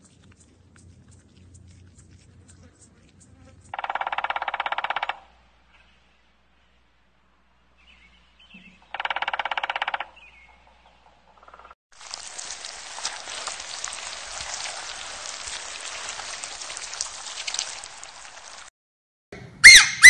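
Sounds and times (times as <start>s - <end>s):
woodpecker drumming on bark: 0.0s - 5.4s, 8.5s - 10.6s.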